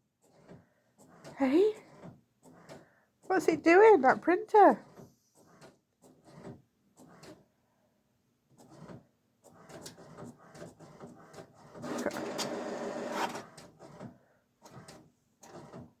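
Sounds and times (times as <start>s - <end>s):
printer mechanism running: 8.6s - 14.1s, 14.7s - 16.0s.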